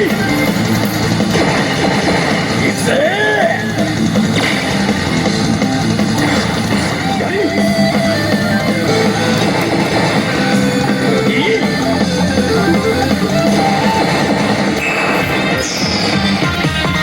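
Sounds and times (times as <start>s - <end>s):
rock music with electric guitar: 0.0s - 17.0s.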